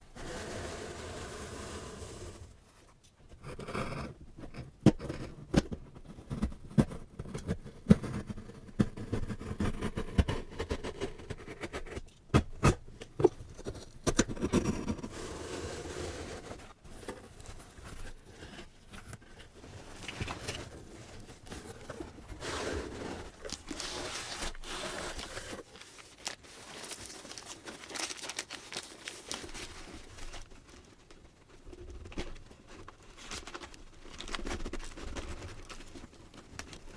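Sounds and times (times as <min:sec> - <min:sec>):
wrapper crinkling and tearing: 0:23.3 - 0:30.8, 0:33.2 - 0:36.0.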